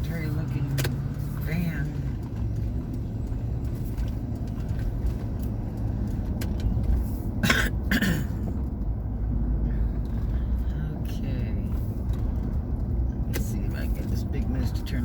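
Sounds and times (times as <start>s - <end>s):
car road noise rumble: 0.0s - 15.0s
person coughing: 7.4s - 8.4s.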